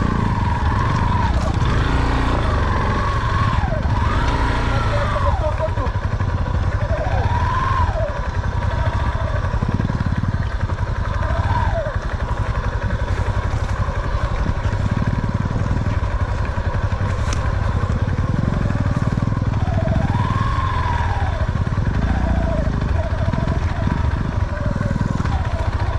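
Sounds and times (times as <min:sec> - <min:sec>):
motorcycle engine rumble: 0:00.0 - 0:25.9.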